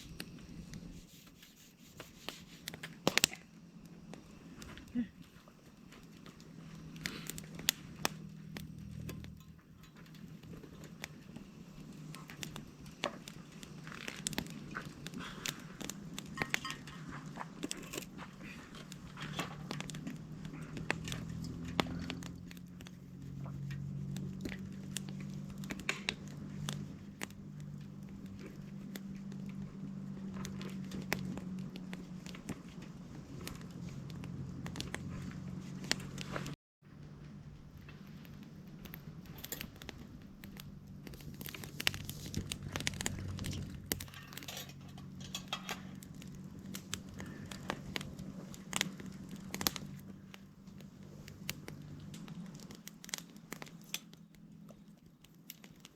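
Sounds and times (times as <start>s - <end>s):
campfire crackling and popping: 0.0s - 55.9s
low steady hum: 0.0s - 55.9s.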